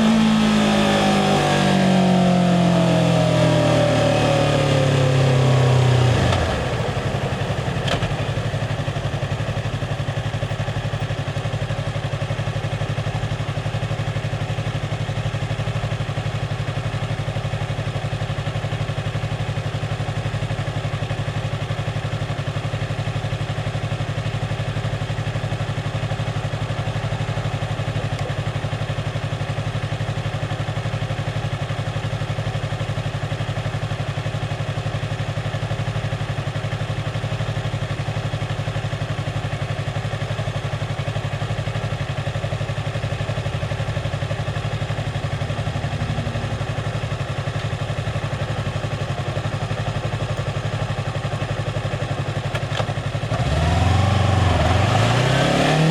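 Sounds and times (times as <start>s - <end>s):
motorcycle engine running: 0.0s - 21.7s, 23.9s - 55.9s.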